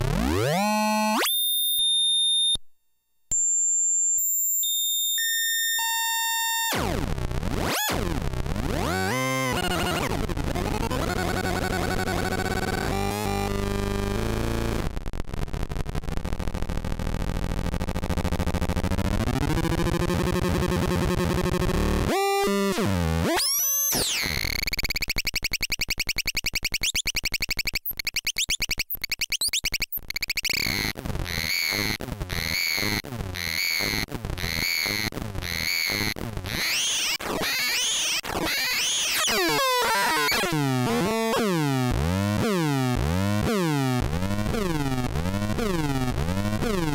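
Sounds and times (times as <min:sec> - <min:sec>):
harsh buzzy electronic tones: 0:06.6 - 0:14.9, 0:19.2 - 0:41.6.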